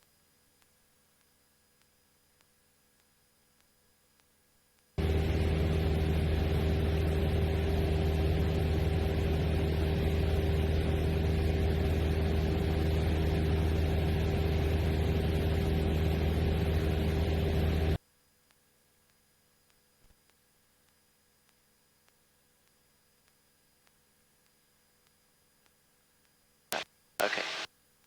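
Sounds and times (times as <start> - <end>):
airplane engine and propeller hum: 5.0 - 18.0.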